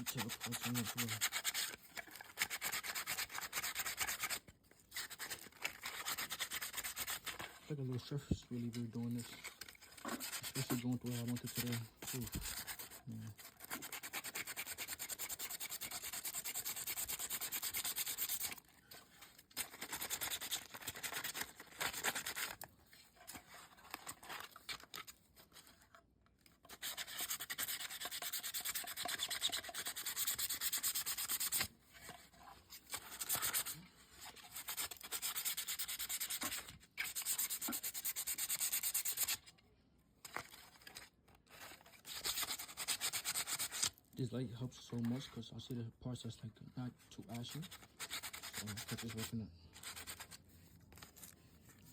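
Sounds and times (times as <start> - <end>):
sandpaper rubbing: 0.0 - 7.7, 8.6 - 18.6, 19.6 - 22.6, 26.7 - 39.4, 40.4 - 44.0, 47.3 - 51.4.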